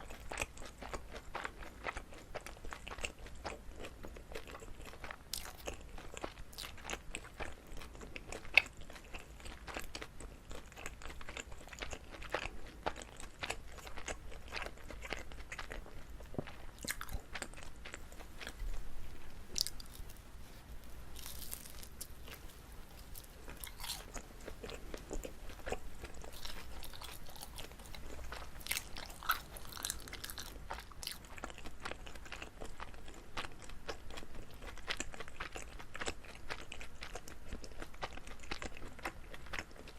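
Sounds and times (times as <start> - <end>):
wet sticky chewing sounds: 0.0 - 20.6, 21.2 - 39.9.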